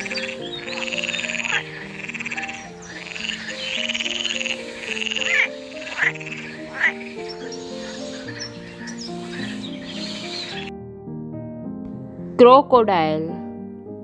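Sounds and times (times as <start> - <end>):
frog croaking in trills: 0.0 - 10.7
light background music: 0.0 - 14.0.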